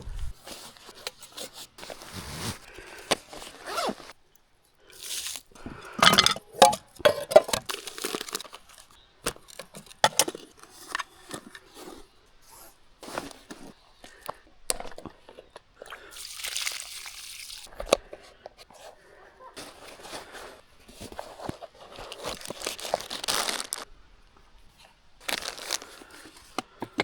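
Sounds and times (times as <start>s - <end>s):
camping gear rustling: 0.0s - 4.2s, 5.2s - 14.3s, 18.1s - 23.9s, 24.7s - 27.0s.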